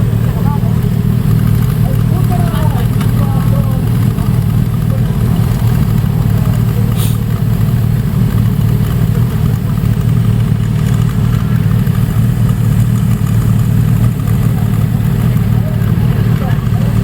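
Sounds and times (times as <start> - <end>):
motorcycle engines running: 0.0 - 17.0
brief sharp noise: 7.0 - 7.2.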